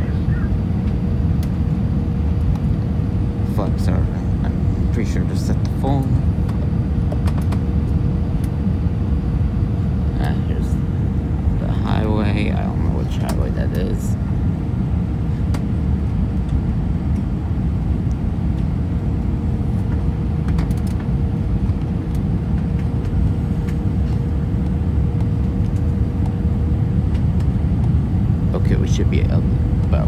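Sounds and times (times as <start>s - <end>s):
airplane engines rumbling: 0.0s - 30.0s
faint steady hum: 0.0s - 30.0s.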